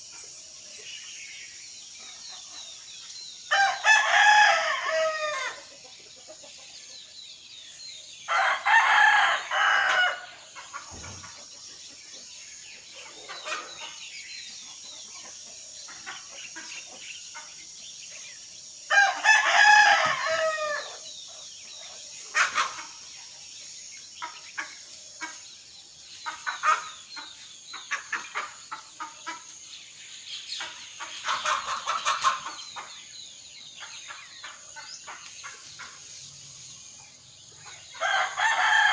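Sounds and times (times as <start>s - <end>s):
small birds chirping: 0.0s - 38.9s
rooster crowing: 3.5s - 5.6s, 8.3s - 10.3s, 18.9s - 21.0s, 38.0s - 38.9s.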